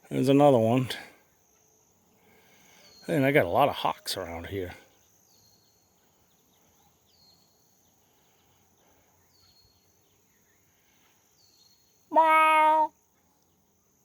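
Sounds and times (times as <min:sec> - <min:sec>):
short high call: 0:12.1 - 0:12.9.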